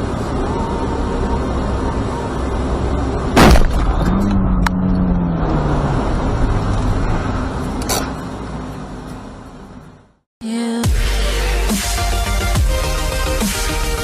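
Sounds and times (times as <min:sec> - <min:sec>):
car road noise: 0:00.0 - 0:10.3
loud impact bang: 0:03.4 - 0:04.1.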